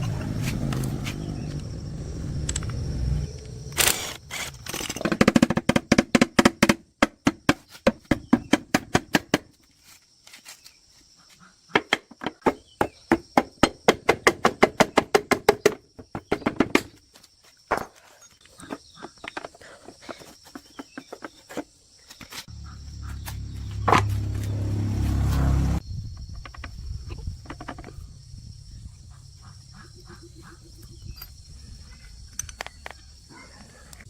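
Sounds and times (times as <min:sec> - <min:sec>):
low rumbling: 0:00.0 - 0:03.9, 0:22.5 - 0:26.2.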